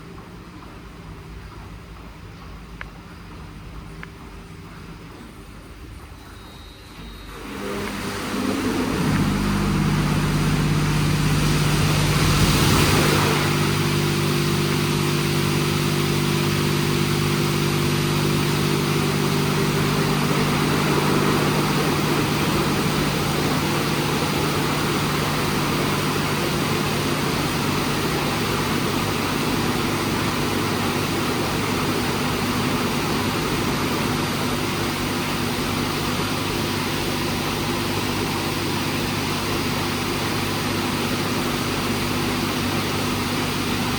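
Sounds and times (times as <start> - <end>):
car wash machine hum: 2.0 - 43.9
steady machine tones: 5.7 - 43.9
spraying water hiss: 7.4 - 38.5
deep rumble: 7.9 - 28.2.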